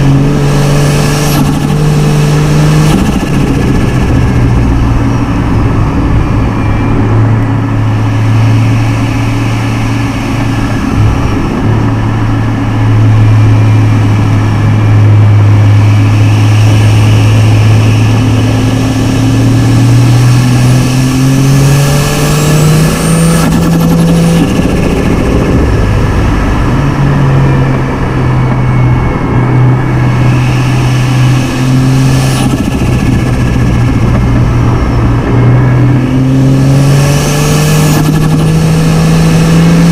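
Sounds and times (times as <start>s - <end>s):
car engine revving: 0.0s - 39.9s
turbo whistle: 14.8s - 21.5s.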